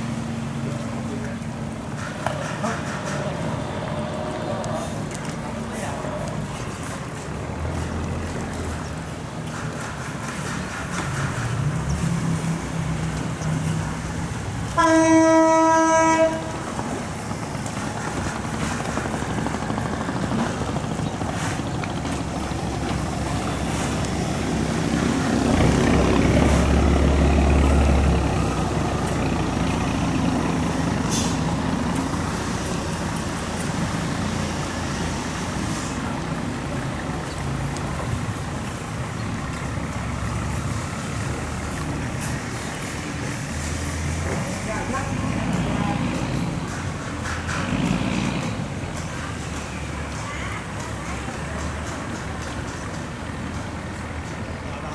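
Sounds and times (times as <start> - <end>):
boat engine running: 0.0 - 54.9
wind: 0.0 - 54.9
horn blast: 14.7 - 16.8.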